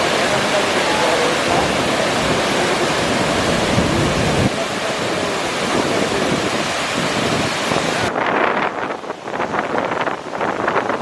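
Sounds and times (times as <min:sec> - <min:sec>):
waterfall rushing water: 0:00.0 - 0:11.0
wind rumble on microphone: 0:00.0 - 0:11.0.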